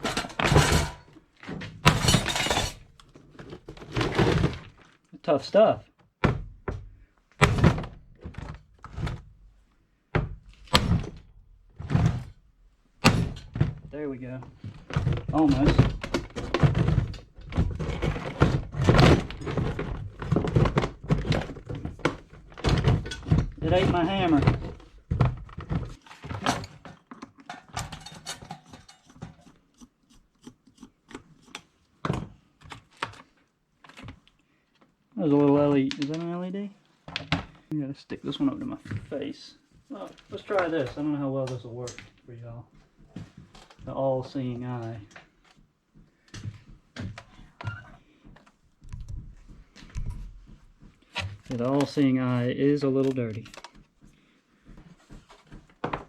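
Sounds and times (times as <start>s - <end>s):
plastic and metal parts clicking: 52.9s - 53.9s.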